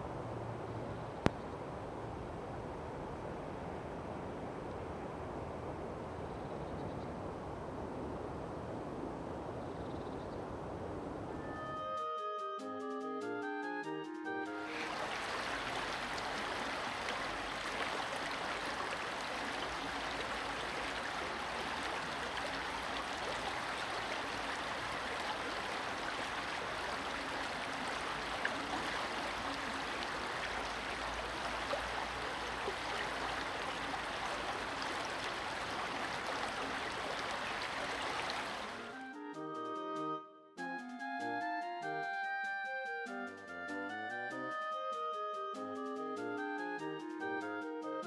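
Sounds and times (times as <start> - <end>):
stream water rushing and gurgling: 14.6 - 39.0.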